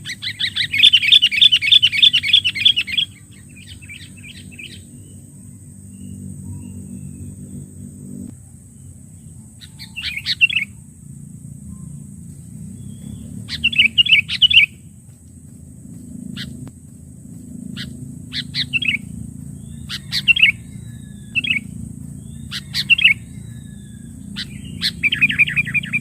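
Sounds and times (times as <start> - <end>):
bird bubbling calls: 12.6 - 14.8, 16.2 - 16.7, 17.6 - 26.0.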